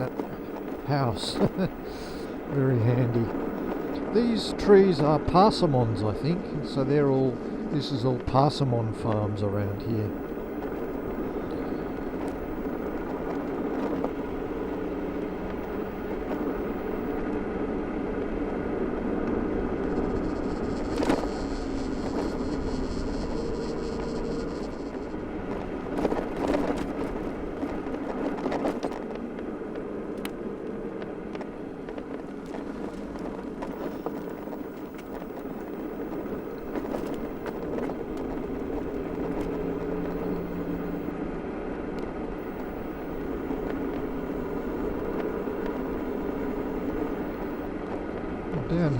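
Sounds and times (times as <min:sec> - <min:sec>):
electric motorcycle motor hum: 0:00.0 - 0:04.5, 0:09.0 - 0:30.2, 0:31.1 - 0:48.6
tyre and wind noise: 0:09.5 - 0:17.3, 0:25.2 - 0:48.6.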